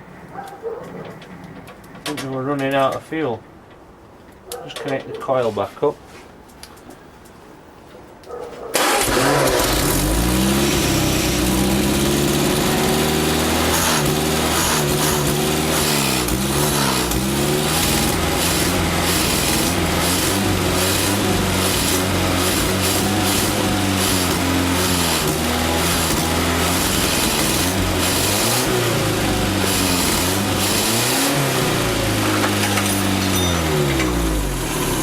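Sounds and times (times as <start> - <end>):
man talking: 2.1 - 3.4, 4.6 - 6.0
car engine starting and running: 8.8 - 35.0.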